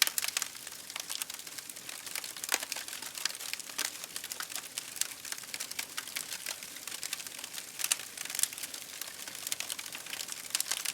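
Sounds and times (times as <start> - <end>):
campfire crackling and popping: 0.0 - 10.9.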